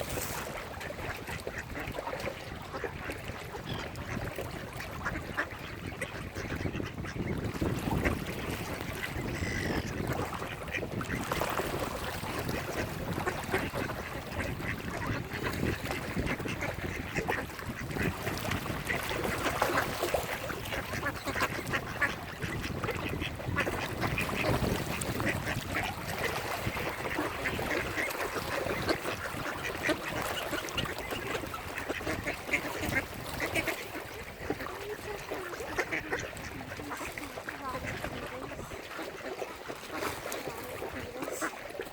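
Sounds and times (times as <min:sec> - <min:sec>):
ducks quacking: 0:00.0 - 0:41.9.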